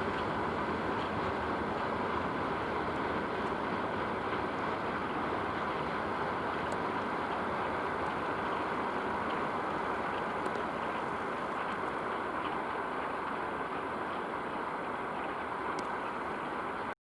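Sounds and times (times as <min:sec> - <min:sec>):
freight train rolling on rails: 0:00.0 - 0:16.9
faint ticks: 0:15.7 - 0:16.2.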